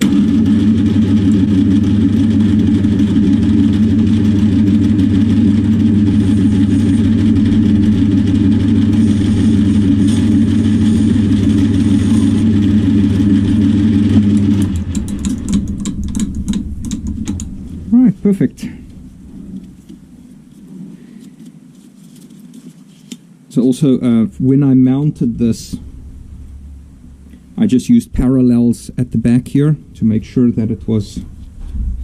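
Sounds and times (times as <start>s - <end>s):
metal lathe running: 0.0s - 20.2s.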